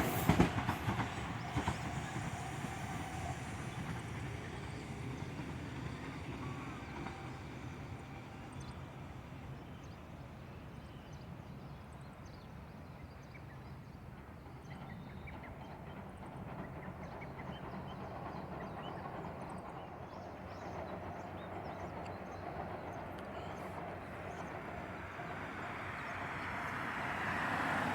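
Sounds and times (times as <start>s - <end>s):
train low rumble: 0.0s - 27.9s.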